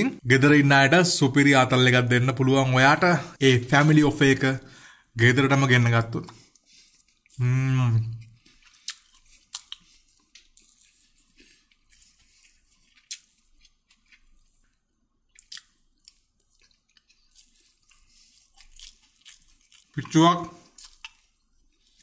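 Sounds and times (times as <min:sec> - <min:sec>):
person chewing food: 0:06.2 - 0:22.0.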